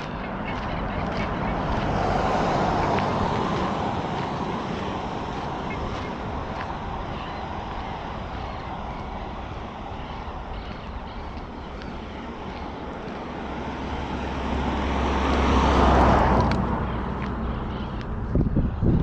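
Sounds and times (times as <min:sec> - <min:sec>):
vehicle driving past: 0:00.0 - 0:19.0.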